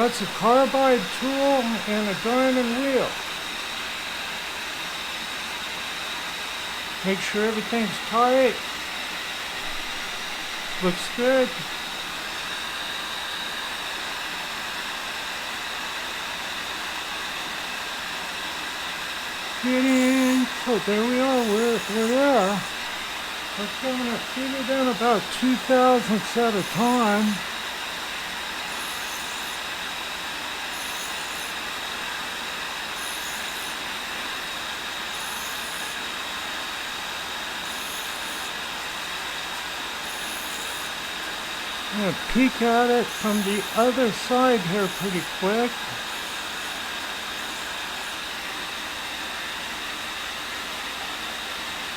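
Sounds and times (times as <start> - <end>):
grinder wheel hiss and whine: 0.0 - 51.9.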